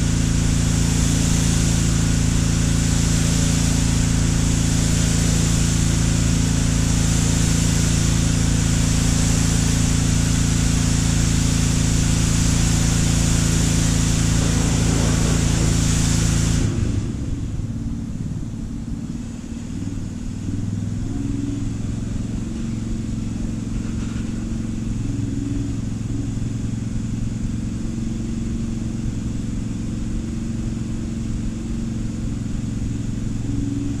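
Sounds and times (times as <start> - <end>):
loud hiss: 0.0 - 17.2
motor humming: 11.4 - 17.2.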